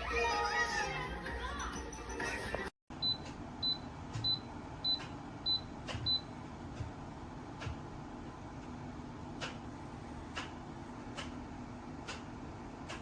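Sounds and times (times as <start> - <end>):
heater fan hum: 2.9 - 13.0.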